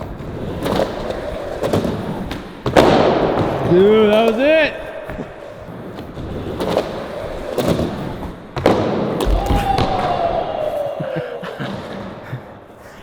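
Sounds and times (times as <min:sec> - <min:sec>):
skateboard slamming on ground: 0:02.6 - 0:03.7
skateboard rolling and squealing: 0:09.1 - 0:11.0.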